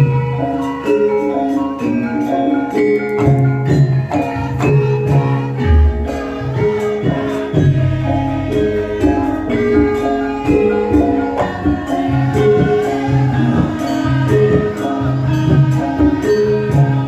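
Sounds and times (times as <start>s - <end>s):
live band music with steady beat: 0.0s - 17.0s.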